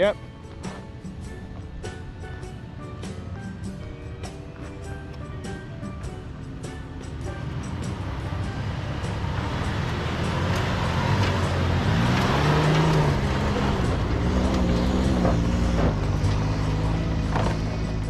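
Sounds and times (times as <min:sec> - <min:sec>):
off-road vehicle engine revving: 0:07.0 - 0:18.0.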